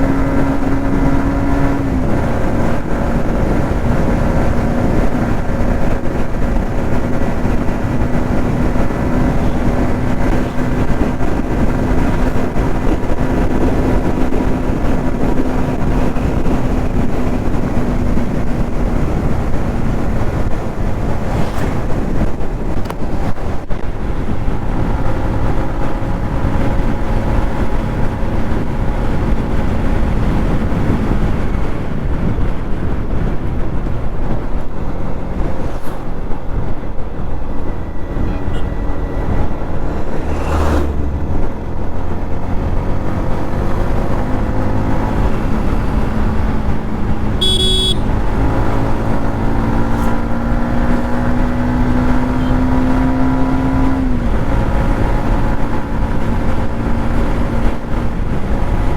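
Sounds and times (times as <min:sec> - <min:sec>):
motorcycle engine cruising: 0:00.0 - 0:58.9
wind rush on microphone: 0:00.0 - 0:58.9.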